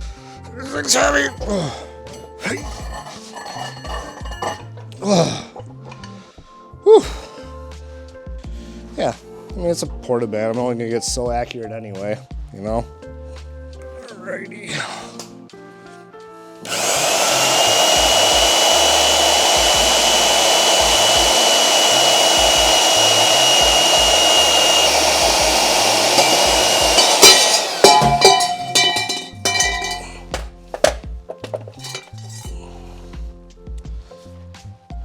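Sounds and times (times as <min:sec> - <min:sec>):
band saw cutting metal tubing: 0:00.8 - 0:04.6, 0:16.7 - 0:30.5, 0:31.7 - 0:32.6
metal clinks and knocks: 0:01.3 - 0:04.7, 0:26.2 - 0:32.5.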